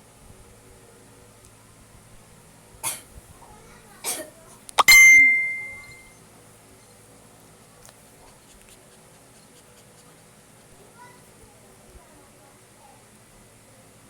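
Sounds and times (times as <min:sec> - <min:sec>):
sharp metallic ding: 0:04.8 - 0:06.0.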